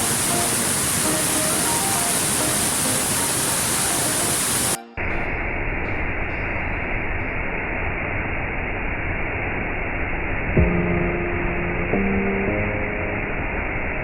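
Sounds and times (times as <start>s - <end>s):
rushing waterfall: 0.0s - 4.8s.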